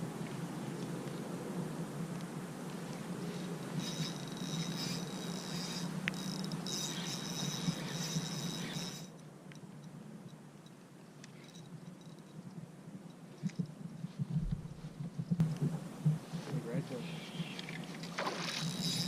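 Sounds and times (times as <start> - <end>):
insects buzzing: 2.6 - 12.4, 15.4 - 19.0.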